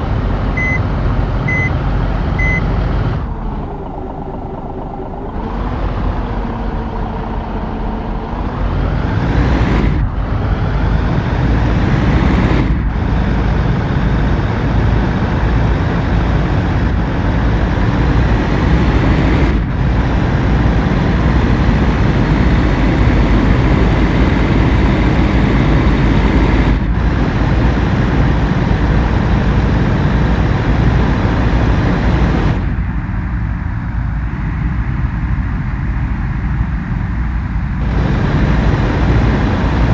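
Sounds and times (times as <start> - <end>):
truck engine running under load: 0.0 - 39.9.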